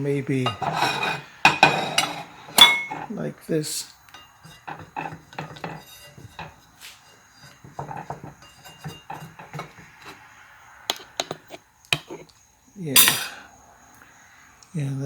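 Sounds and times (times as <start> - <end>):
spatula scraping and tapping dish: 0.4 - 3.2, 4.1 - 12.4.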